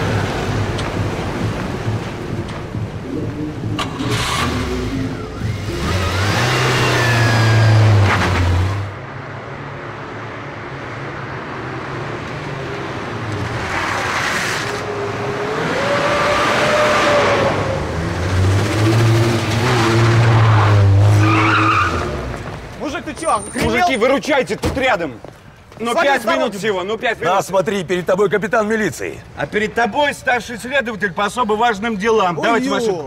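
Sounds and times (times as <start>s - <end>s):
car engine revving: 0.0s - 9.0s, 12.8s - 22.6s.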